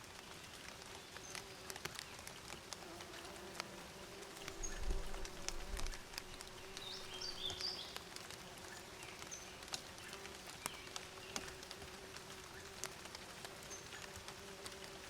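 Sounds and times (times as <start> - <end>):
faint clicks: 0.0 - 15.0
honeybees buzzing: 2.8 - 8.8, 9.7 - 15.0
small birds chirping: 4.2 - 14.6.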